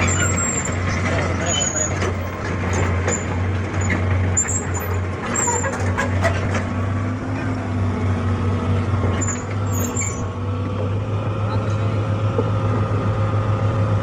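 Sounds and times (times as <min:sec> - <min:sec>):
excavator diesel engine running: 0:00.0 - 0:14.0
faint high metallic squeaks: 0:01.4 - 0:03.3, 0:04.4 - 0:06.8, 0:09.2 - 0:10.3.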